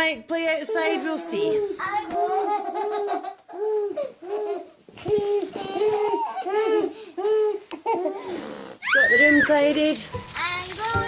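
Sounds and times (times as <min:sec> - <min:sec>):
young child laughing and babbling: 0:01.8 - 0:08.1.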